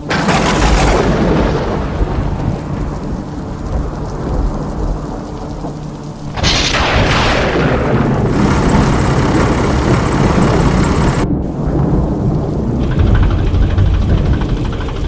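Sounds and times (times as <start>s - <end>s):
steady rain: 0.0s - 15.0s
thunder crack and rumble: 0.0s - 15.0s.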